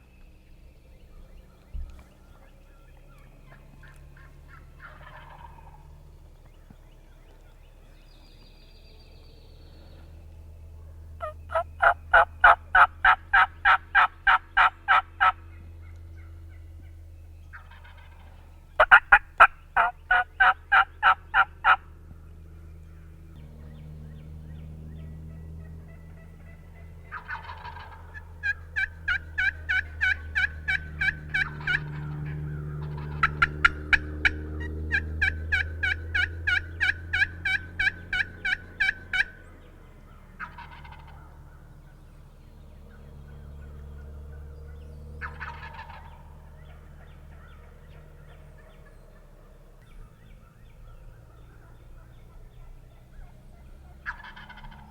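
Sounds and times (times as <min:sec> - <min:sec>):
turkey yelping: 0:03.1 - 0:05.9, 0:11.2 - 0:21.8, 0:25.0 - 0:42.1, 0:43.0 - 0:54.9.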